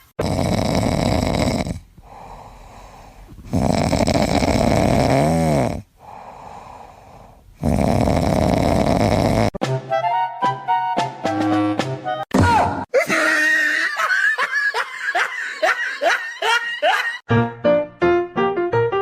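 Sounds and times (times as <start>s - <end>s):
loud rattling snoring: 0.2s - 9.6s
music: 9.6s - 12.3s, 17.3s - 19.0s.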